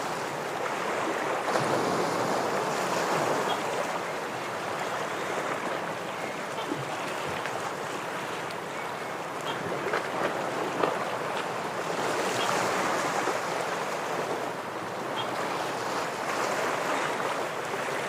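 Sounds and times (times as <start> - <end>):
surf washing against rocks: 0.0 - 6.0.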